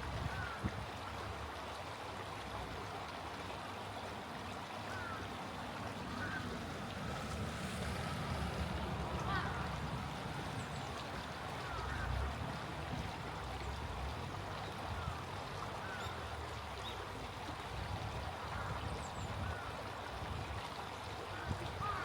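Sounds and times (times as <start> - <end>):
stream flowing: 0.0 - 22.0
faint bird calls: 4.9 - 5.3, 6.0 - 6.6.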